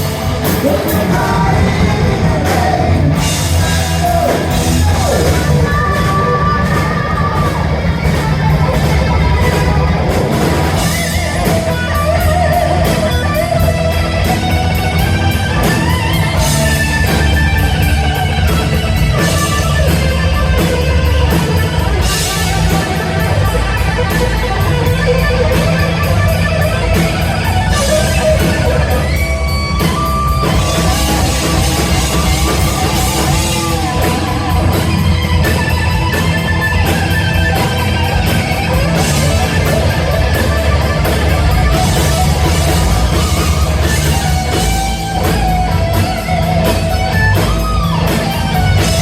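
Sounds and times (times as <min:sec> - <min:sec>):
bass guitar: 0:00.0 - 0:49.0
distorted electric guitar lead: 0:00.0 - 0:49.0
drums: 0:00.0 - 0:49.0.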